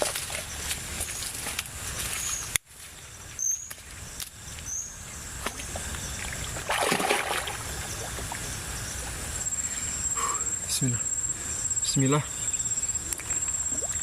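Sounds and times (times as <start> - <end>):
forest insects: 0.0 - 14.0
river water sloshing: 5.4 - 9.3
water splash: 6.2 - 8.5.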